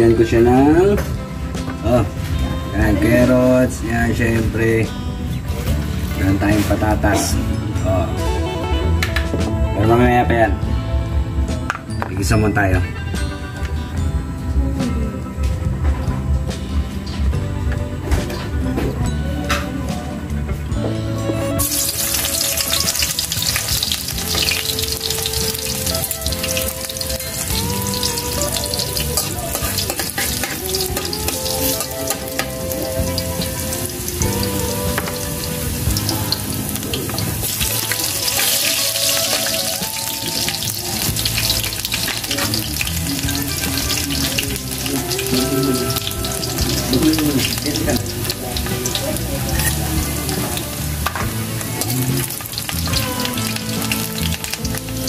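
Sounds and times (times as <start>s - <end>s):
garlic sizzling in oil: 21.6s - 55.0s.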